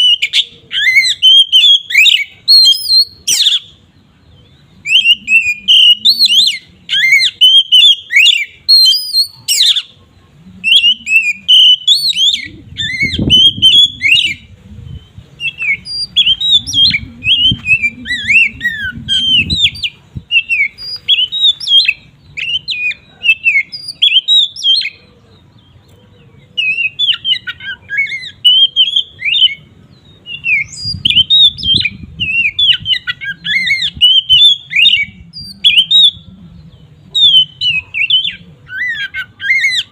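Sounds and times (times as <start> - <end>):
magpie-robin singing: 0.0 - 39.9.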